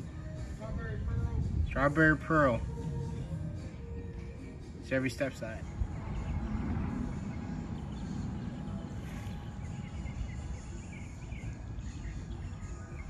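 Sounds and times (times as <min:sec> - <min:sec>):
birds chirping: 0:04.6 - 0:13.0
steady low rumble: 0:05.3 - 0:13.0.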